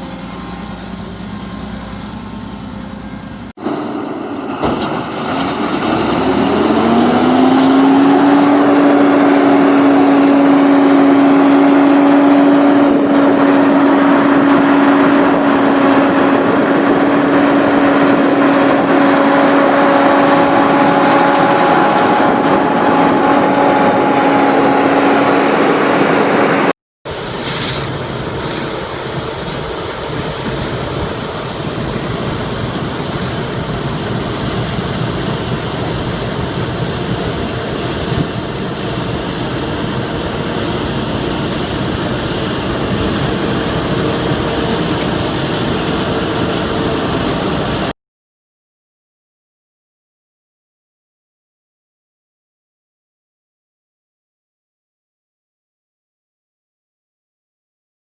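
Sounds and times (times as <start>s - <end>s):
quieter steady machine run: 0.0s - 3.9s
combine harvester diesel engine: 0.0s - 47.9s.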